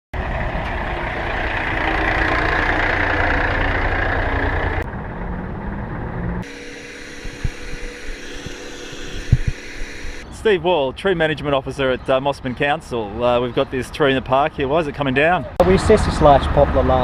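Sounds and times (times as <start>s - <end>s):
heavy engine rumbling: 0.2s - 10.2s.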